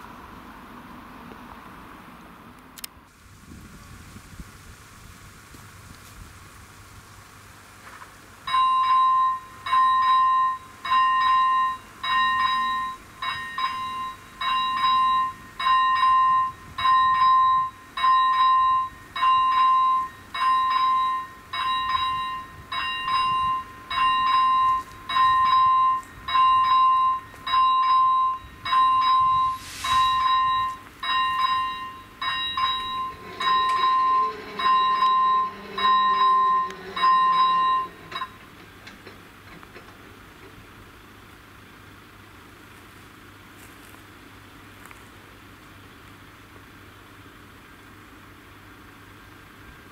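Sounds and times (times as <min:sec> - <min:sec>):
level crossing electronic bell ringing: 0:08.5 - 0:38.4.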